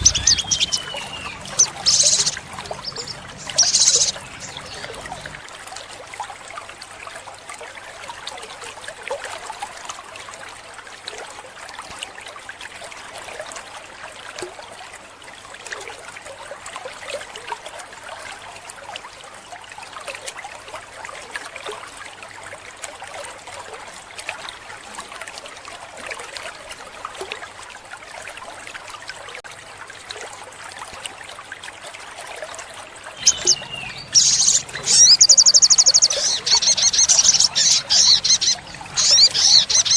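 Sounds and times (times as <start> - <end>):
bird singing high chirps: 0.0 - 5.3, 33.2 - 39.9
water trickling: 0.0 - 39.9.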